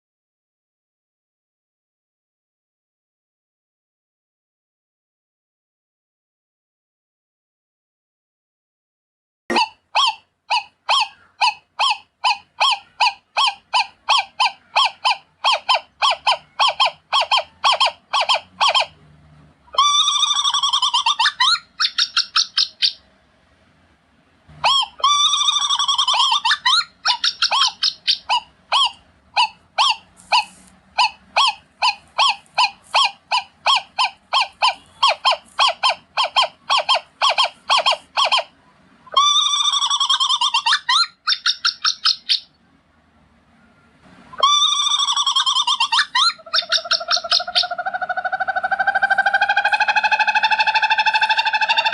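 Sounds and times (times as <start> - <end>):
owl chattering screeches: 9.5 - 19.0, 19.7 - 23.0, 24.6 - 42.5, 44.4 - 51.9
owl short sharp calls: 24.6 - 38.5.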